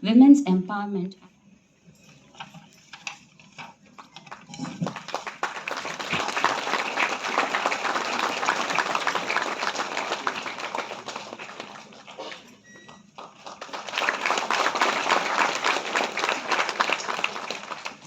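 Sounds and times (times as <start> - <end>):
audience applauding: 3.9 - 18.0.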